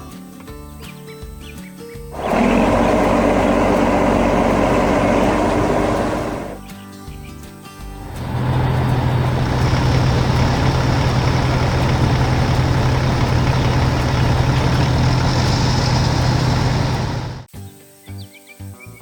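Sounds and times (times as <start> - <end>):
heavy vehicle engine running: 2.1 - 6.6, 8.0 - 17.5.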